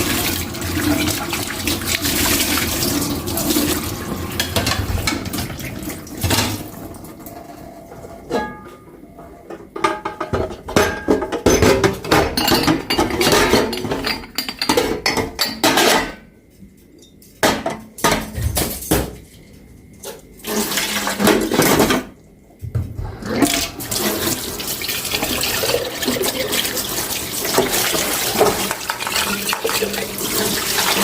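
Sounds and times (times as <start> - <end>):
tap water running into sink: 0.0 - 6.6, 23.4 - 31.0
dishes clinking: 8.3 - 9.0, 9.6 - 16.3.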